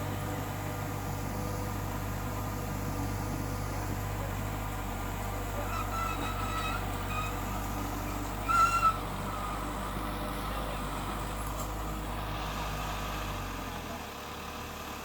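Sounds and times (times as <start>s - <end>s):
heavy machine engine humming: 0.0s - 15.0s.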